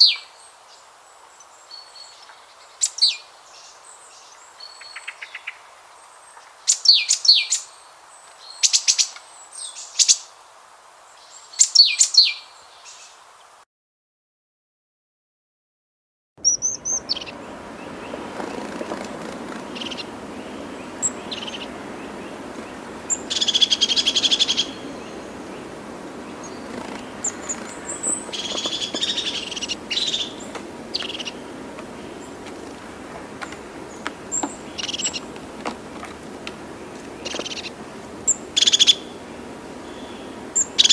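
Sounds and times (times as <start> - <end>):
background noise: 0.0 - 13.6
bird chirping and trilling: 16.4 - 32.4, 33.4 - 35.4, 36.7 - 40.9.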